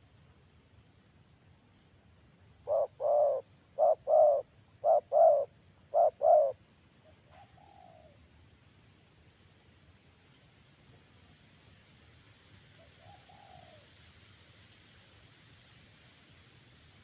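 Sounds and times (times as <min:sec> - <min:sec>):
dove cooing: 0:02.7 - 0:06.6, 0:07.3 - 0:08.2, 0:13.0 - 0:13.8.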